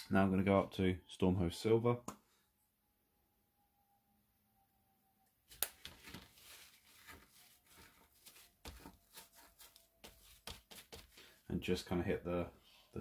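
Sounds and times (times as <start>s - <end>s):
paint brush scratching: 6.3s - 11.4s.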